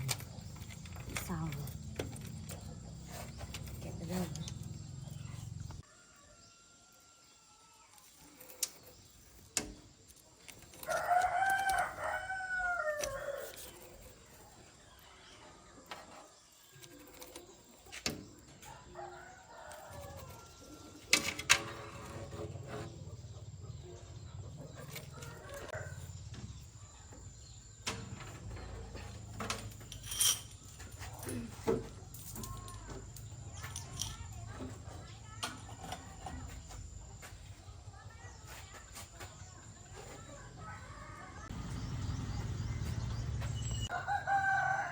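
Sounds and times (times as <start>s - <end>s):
rooster crowing: 10.8s - 13.4s, 43.9s - 44.9s.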